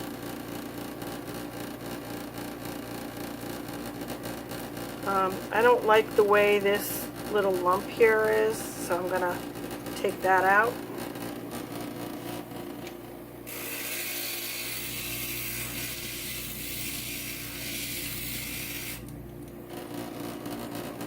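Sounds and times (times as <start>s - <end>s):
glass grinder running: 4.5s - 12.7s, 13.4s - 21.0s.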